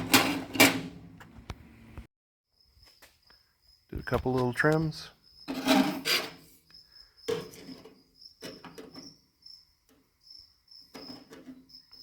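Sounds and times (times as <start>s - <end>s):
sheet metal scraping: 0.0s - 1.0s, 5.5s - 6.6s
crickets chirping: 2.5s - 12.0s.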